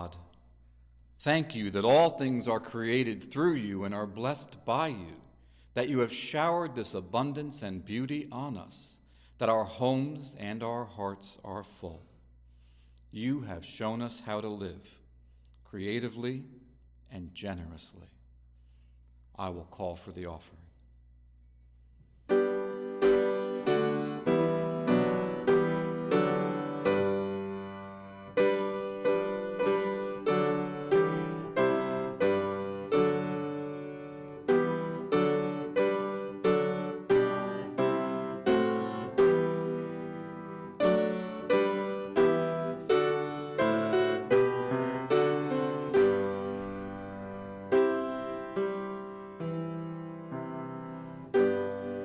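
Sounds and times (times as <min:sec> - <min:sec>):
piano playing: 0:22.3 - 0:52.0.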